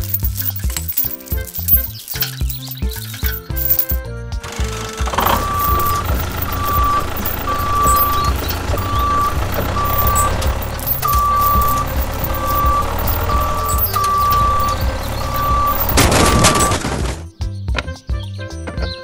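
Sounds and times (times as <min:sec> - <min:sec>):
heavy engine rumble: 0:00.0 - 0:17.2
high-pitched beep: 0:05.2 - 0:16.9.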